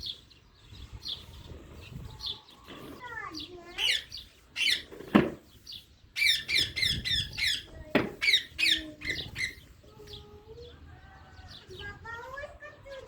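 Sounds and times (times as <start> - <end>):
parrots squeaky calls: 3.7 - 5.1, 6.2 - 9.8.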